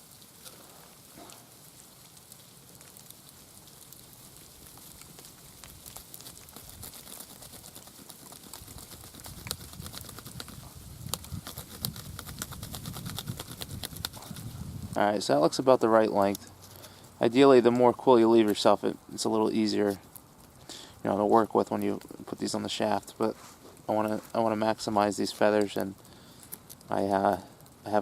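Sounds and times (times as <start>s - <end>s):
feather being cut ticking: 5.0s - 14.6s.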